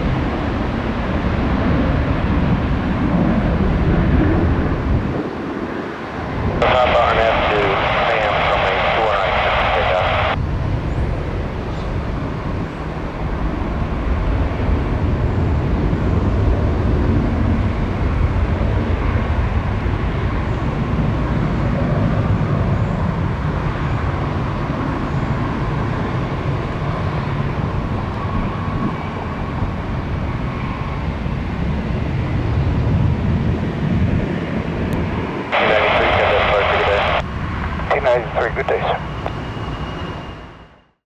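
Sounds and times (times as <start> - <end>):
jet engines roaring: 0.0 - 40.8
faint engine whine: 0.0 - 41.0.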